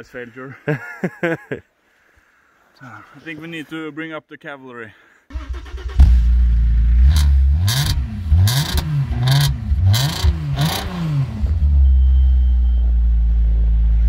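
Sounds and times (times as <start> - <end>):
vehicle engine revving and idling: 5.9 - 14.0.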